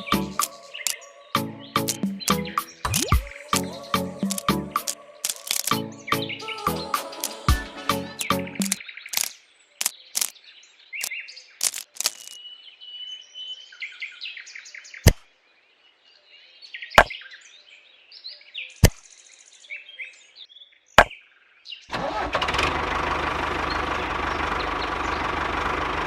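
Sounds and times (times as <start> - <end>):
birds chirping: 0.0 - 12.4
sharp clicks: 1.8 - 2.3, 2.9 - 5.8, 8.2 - 10.3, 11.6 - 12.4.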